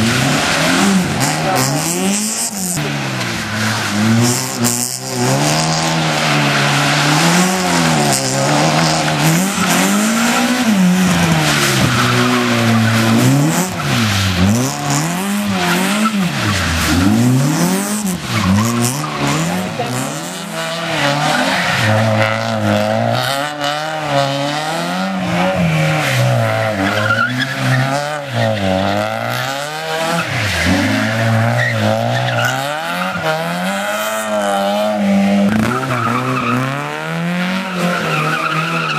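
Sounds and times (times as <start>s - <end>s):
car engine revving hard: 0.0s - 38.9s
tyres squealing and skidding: 0.0s - 38.9s.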